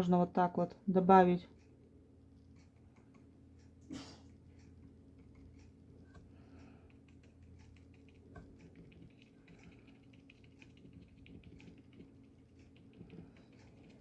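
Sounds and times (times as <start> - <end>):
low steady hum: 0.0 - 14.0
paintbrush tapping on paper: 4.8 - 14.0.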